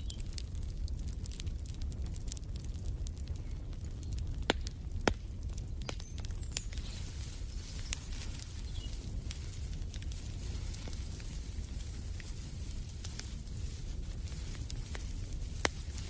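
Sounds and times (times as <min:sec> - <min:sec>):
fire crackling: 0:00.0 - 0:16.0
low fire rumble: 0:00.0 - 0:16.0
sharp pops and snaps: 0:03.4 - 0:16.0
faint bird chirp: 0:05.8 - 0:09.0.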